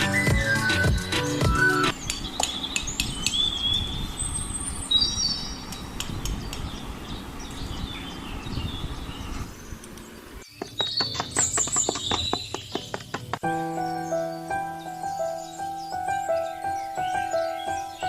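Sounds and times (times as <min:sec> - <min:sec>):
music: 0:00.0 - 0:01.9, 0:12.8 - 0:18.0
high bird-like chirps: 0:00.0 - 0:09.5, 0:10.4 - 0:18.0.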